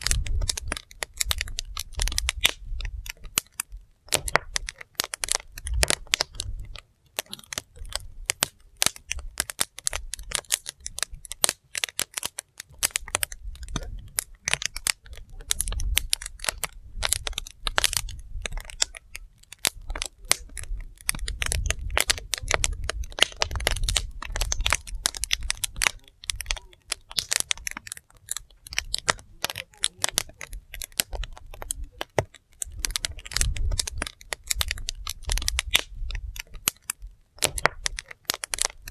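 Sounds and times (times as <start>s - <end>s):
logs crackling and popping: 0.0s - 38.9s
low wavering fire rumble: 15.1s - 27.0s.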